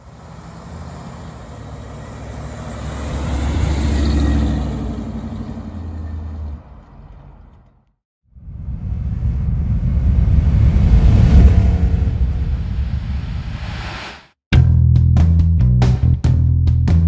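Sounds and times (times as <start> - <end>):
car engine passing by: 0.0 - 7.8, 8.4 - 14.3.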